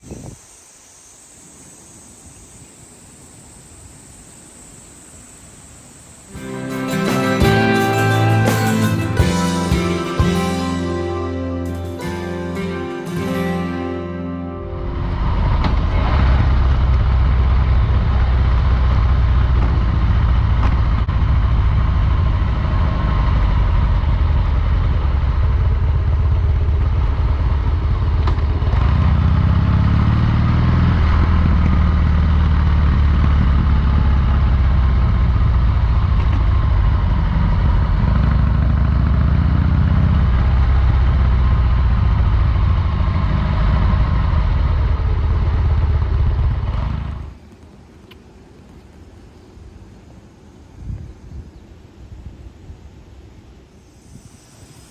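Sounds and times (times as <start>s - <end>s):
motorcycle engine running: 14.7s - 49.0s.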